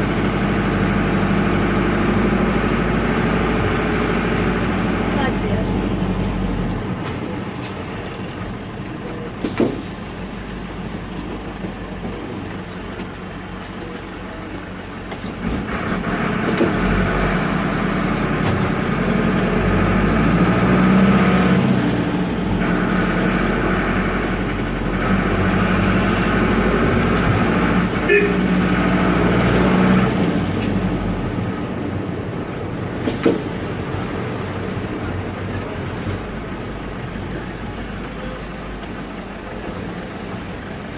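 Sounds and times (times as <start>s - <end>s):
diesel engine while driving: 0.0s - 40.9s.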